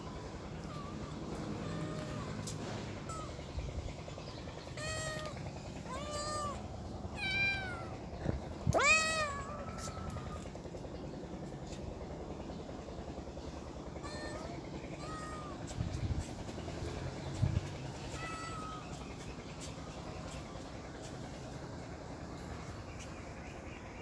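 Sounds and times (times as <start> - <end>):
cats meowing: 0.1 - 3.5, 4.6 - 10.6, 14.0 - 16.3, 17.8 - 19.2.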